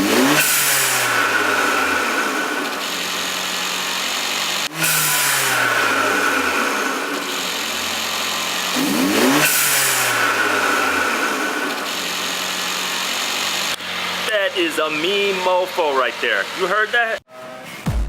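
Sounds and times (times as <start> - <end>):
car engine revving: 0.0 - 17.5.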